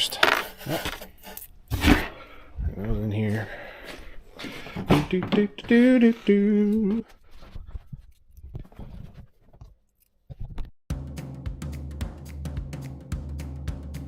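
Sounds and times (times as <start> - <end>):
man humming: 5.1 - 7.1
background music with drum beat: 10.9 - 14.0.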